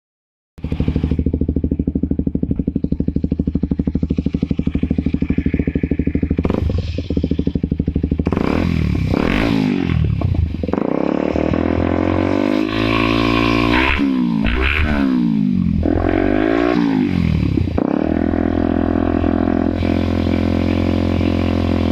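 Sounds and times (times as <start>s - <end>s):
motorcycle engine idling and revving: 0.6s - 21.9s.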